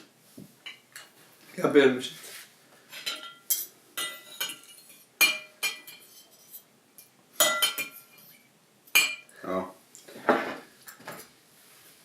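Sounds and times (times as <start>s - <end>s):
cutlery clinking against dishes: 2.9s - 9.3s.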